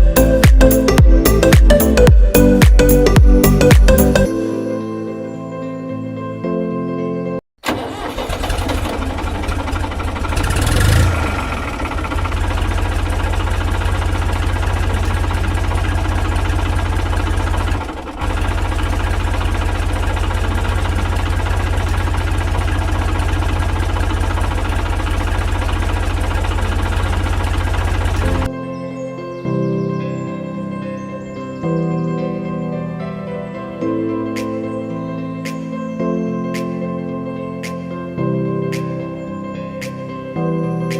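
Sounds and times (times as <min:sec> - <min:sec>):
tractor engine running: 0:07.6 - 0:28.5.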